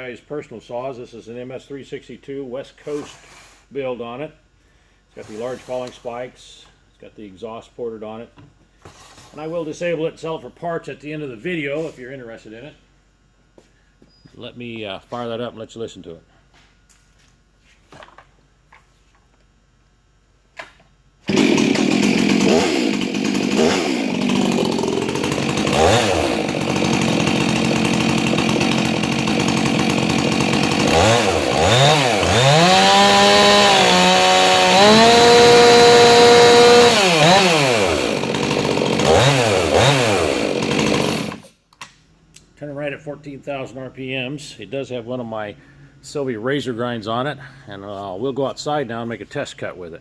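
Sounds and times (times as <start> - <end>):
chainsaw idling and revving: 21.3 - 41.5.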